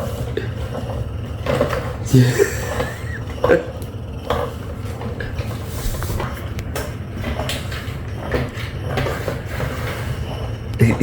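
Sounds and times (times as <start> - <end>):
toy motor humming: 2.1 - 3.6.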